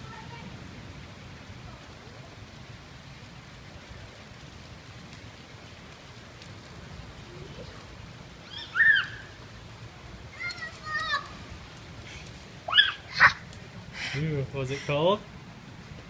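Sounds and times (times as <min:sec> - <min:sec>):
steady rain falling: 0:00.0 - 0:16.0
faint drip ticks: 0:04.6 - 0:08.1, 0:09.0 - 0:12.6.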